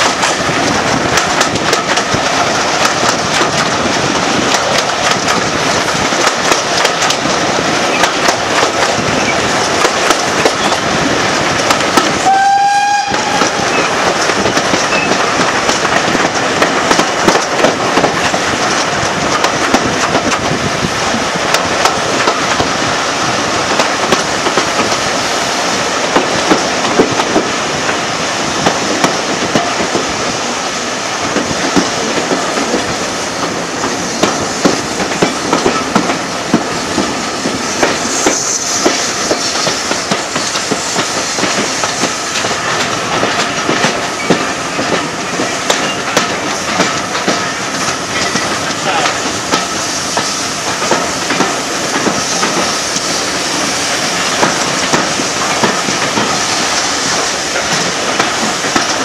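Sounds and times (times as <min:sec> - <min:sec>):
train rumbling: 0:00.0 - 0:59.0
wheels clacking over rail joints: 0:00.0 - 0:59.0
train horn toot: 0:12.2 - 0:13.9.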